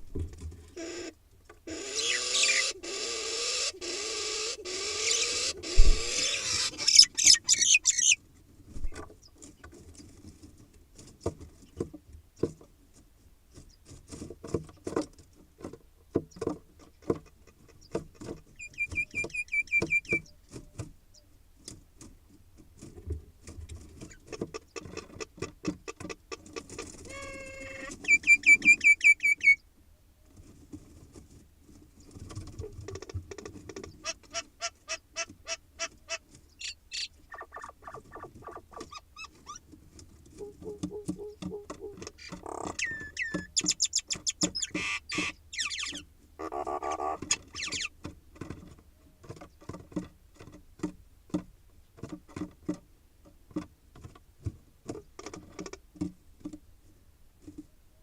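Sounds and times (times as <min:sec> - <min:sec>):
birds chattering and whistling: 0:01.7 - 0:08.2, 0:18.6 - 0:20.4, 0:27.2 - 0:29.6, 0:36.5 - 0:39.6, 0:40.4 - 0:47.9.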